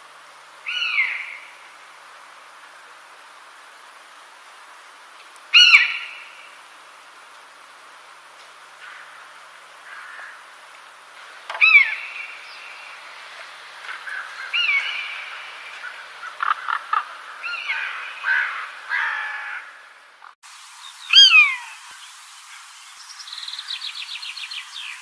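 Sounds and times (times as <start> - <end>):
faint steady hiss: 0.0 - 25.0
loud falling bird calls: 0.6 - 1.8, 5.4 - 6.7, 8.7 - 10.7, 11.3 - 20.4, 21.1 - 21.9
bird chirps and warbling: 0.7 - 1.5, 5.5 - 6.4, 11.6 - 13.0, 14.0 - 19.6, 20.9 - 21.9.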